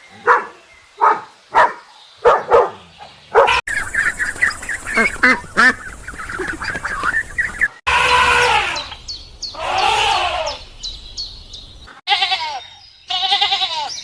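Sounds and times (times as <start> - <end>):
livestock bleating: 7.9 - 9.0, 9.6 - 10.6, 12.1 - 14.0.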